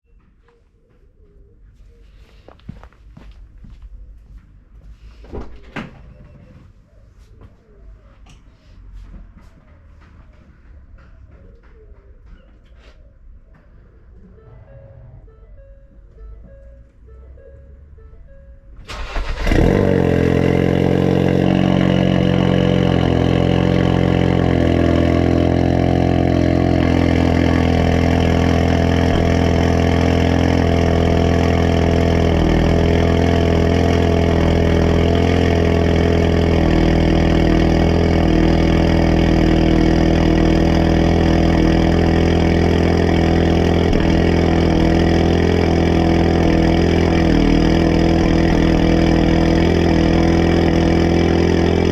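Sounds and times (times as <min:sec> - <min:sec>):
car engine starting and idling: 0:14.0 - 0:51.9.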